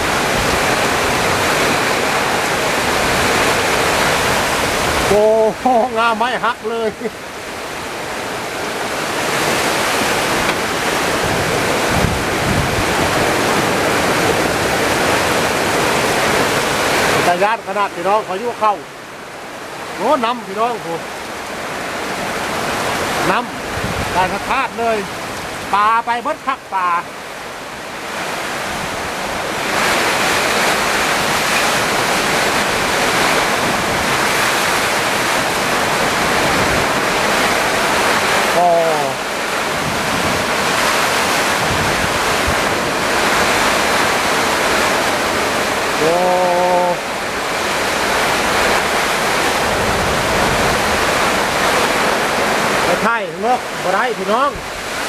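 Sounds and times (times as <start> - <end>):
heavy rain: 0.0 - 55.0
strong wind: 0.0 - 55.0
wind gust buffeting microphone: 6.9 - 17.4, 21.0 - 25.7, 27.3 - 53.0.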